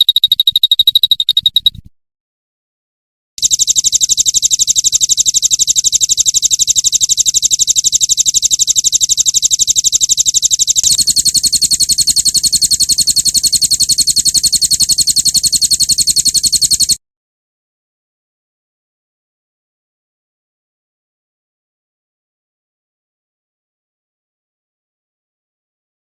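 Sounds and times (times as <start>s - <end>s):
high-pitched bird trill: 0.0s - 1.8s, 8.1s - 17.0s.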